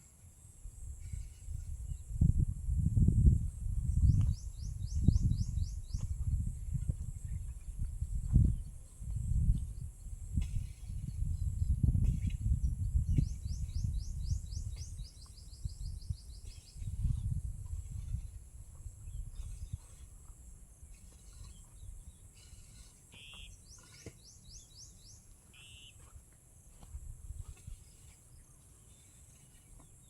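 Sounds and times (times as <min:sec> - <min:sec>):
wind on microphone: 0:00.6 - 0:22.9, 0:26.8 - 0:28.1
small bird chirping: 0:03.8 - 0:08.8, 0:09.4 - 0:17.4, 0:23.1 - 0:26.0.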